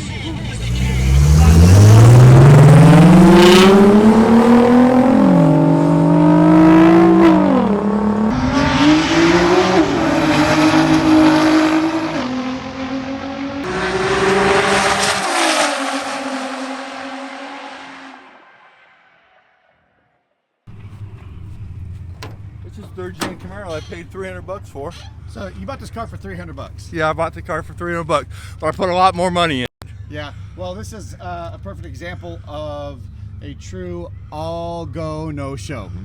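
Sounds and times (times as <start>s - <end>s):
cars racing at full throttle: 0.0s - 19.5s.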